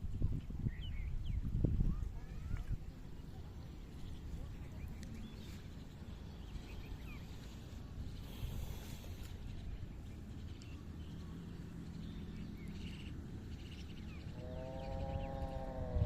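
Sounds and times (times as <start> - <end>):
low steady rumble: 0.0 - 16.0
drawn-out animal call: 8.2 - 16.0.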